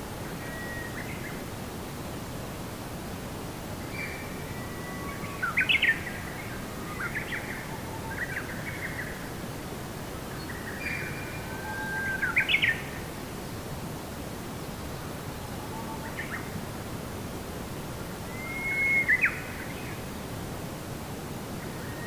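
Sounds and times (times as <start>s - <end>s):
background hiss: 0.0s - 22.0s
songbird singing: 3.8s - 13.1s, 18.2s - 20.2s.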